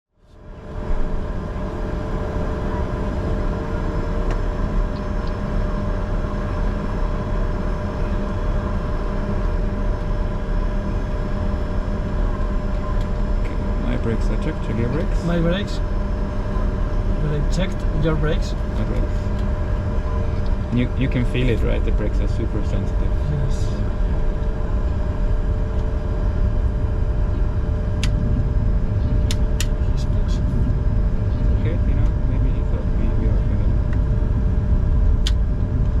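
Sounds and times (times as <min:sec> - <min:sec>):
jet engines deep rumble: 0:00.1 - 0:36.0.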